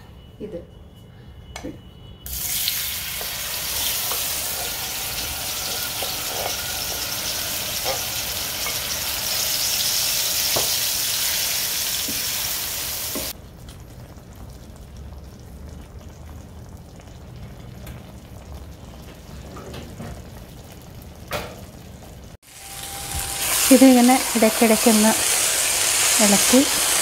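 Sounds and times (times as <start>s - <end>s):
food sizzling in oil: 2.3s - 15.1s, 20.2s - 27.0s.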